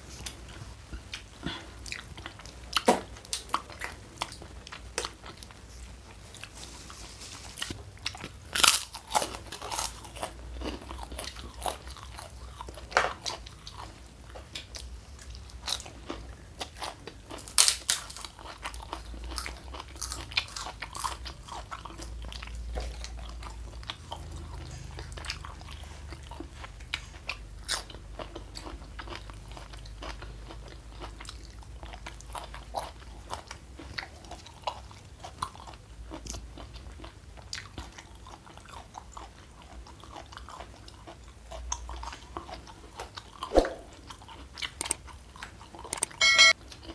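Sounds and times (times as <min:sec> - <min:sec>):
crunching bites and chewing: 0:07.6 - 0:25.6.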